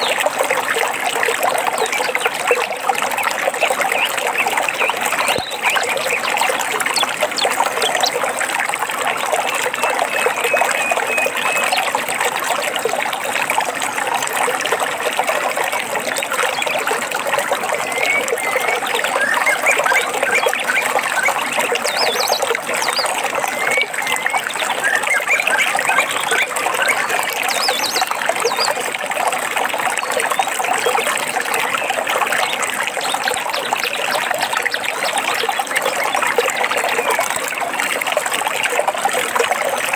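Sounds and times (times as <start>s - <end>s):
stream babbling: 0.0s - 39.9s
birds chirping and trilling: 3.8s - 8.2s, 17.9s - 28.8s.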